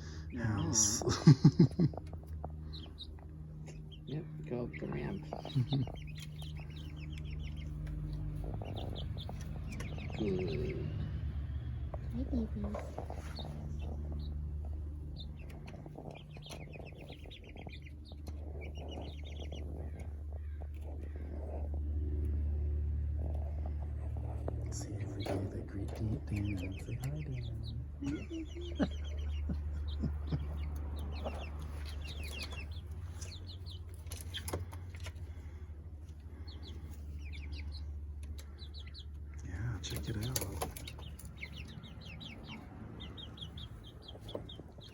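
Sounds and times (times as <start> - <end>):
chicks peeping: 0.0 - 44.9
low steady hum: 0.0 - 44.9.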